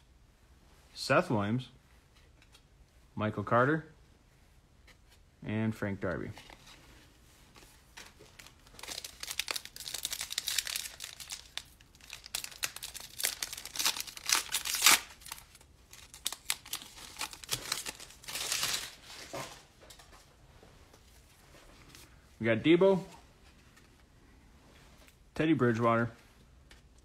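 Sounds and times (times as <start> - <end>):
wrapper tearing and crinkling: 8.4 - 19.3.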